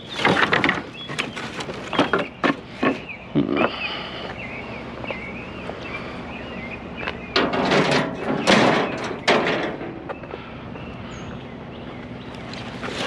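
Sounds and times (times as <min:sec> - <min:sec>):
wire shelving clattering and scraping: 0:00.0 - 0:03.0, 0:07.3 - 0:10.2, 0:12.6 - 0:13.0.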